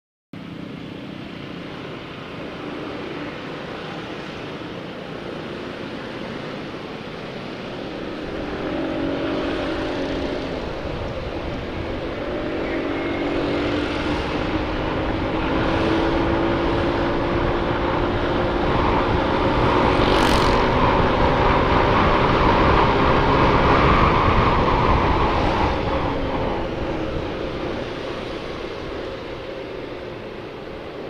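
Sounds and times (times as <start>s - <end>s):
wind buffeting microphone: 7.2s - 31.0s
motorcycle engine running: 7.9s - 23.3s.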